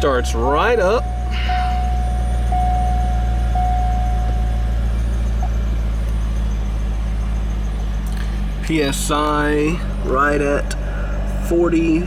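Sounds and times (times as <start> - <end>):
steady high tone: 0.0 - 7.2
car engine idling: 0.0 - 12.0.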